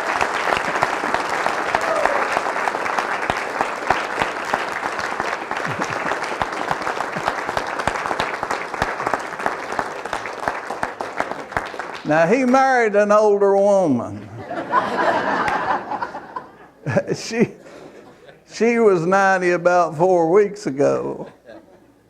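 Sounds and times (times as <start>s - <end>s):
congregation applauding: 0.0s - 13.4s, 14.7s - 16.4s.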